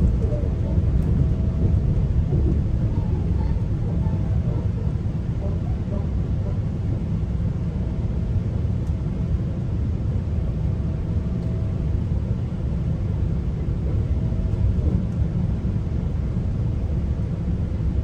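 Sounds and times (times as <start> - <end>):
train wheels rumbling on rails: 0.0 - 6.0, 13.1 - 17.8.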